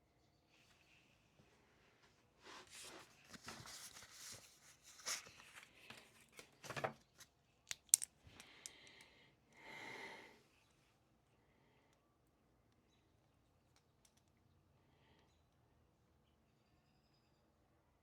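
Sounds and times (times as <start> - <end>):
rustling and handling at a desk: 0.6 - 7.4.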